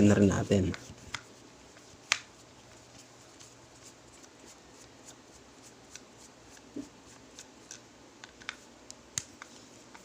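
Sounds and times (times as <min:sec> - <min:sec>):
faint clicks handling plastic parts: 0:05.9 - 0:10.0.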